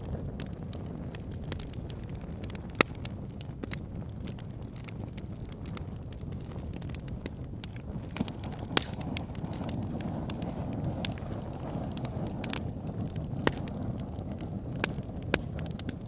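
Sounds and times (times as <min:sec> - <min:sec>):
burning logs crackling and popping: 0:00.0 - 0:16.0
low rumble of flames: 0:00.0 - 0:16.0.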